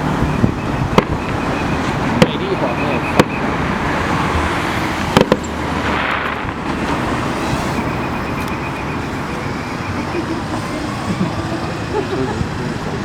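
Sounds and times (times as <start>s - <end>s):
traffic noise: 0.0s - 13.0s
fireworks bangs: 0.8s - 8.6s.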